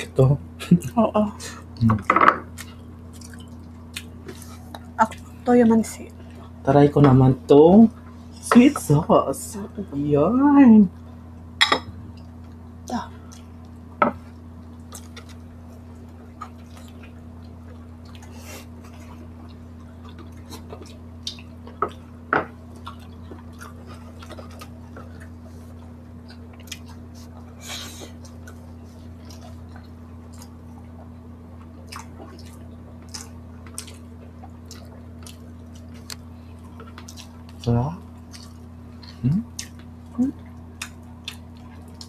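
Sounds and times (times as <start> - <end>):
low hum: 0.0 - 42.0
close chewing: 1.9 - 5.4, 13.2 - 42.0
wet clicks and lip smacks: 34.7 - 36.3.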